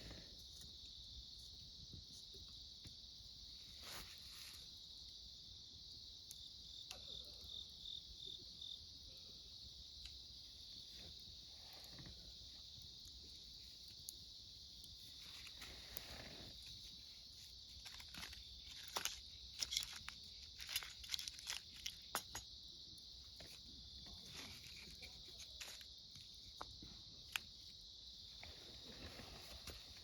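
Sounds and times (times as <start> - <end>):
insects chirring: 0.0 - 30.0
campfire crackling and popping: 9.8 - 11.4, 12.1 - 24.2.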